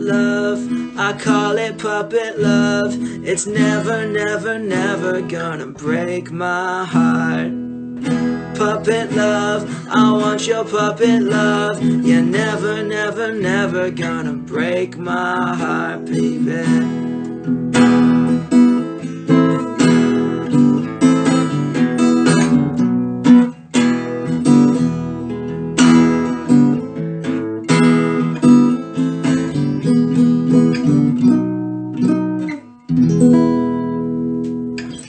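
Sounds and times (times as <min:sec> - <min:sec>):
acoustic guitar strumming chords: 0:00.0 - 0:35.0.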